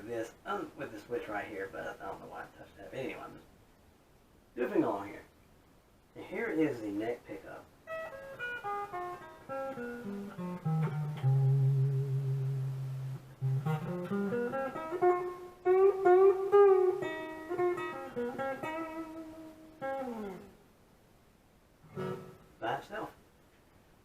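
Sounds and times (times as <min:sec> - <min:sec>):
clean electric guitar playing: 0:07.9 - 0:20.6, 0:21.9 - 0:22.4.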